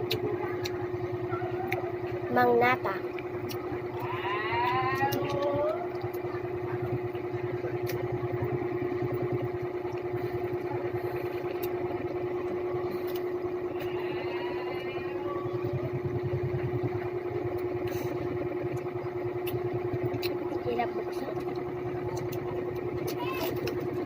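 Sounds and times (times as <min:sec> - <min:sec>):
motor humming and pulsing: 0:00.0 - 0:24.0.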